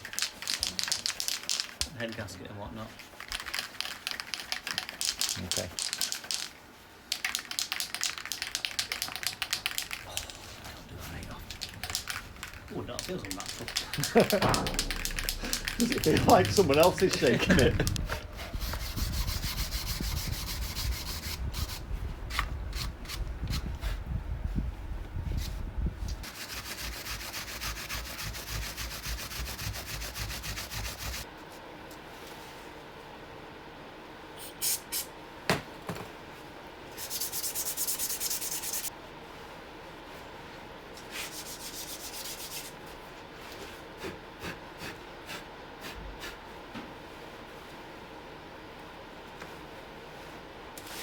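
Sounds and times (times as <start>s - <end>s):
spray can ball rattling: 0.0s - 2.3s, 3.0s - 20.7s
abrasive hand rubbing strokes: 9.9s - 21.3s.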